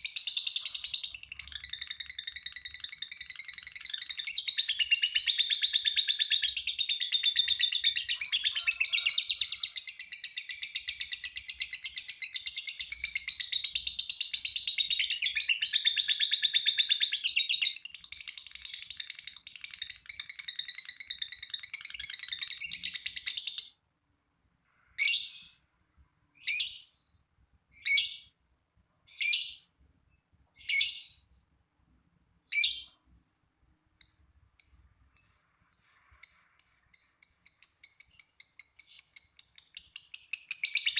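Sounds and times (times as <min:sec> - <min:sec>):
bird sharp calls: 0:00.0 - 0:23.7
lovebird chattering song: 0:00.0 - 0:23.8, 0:34.0 - 0:40.9.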